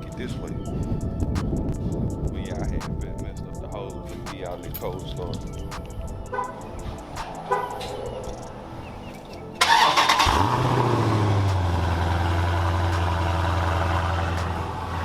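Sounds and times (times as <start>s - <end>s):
truck engine starting and idling: 9.6s - 15.0s.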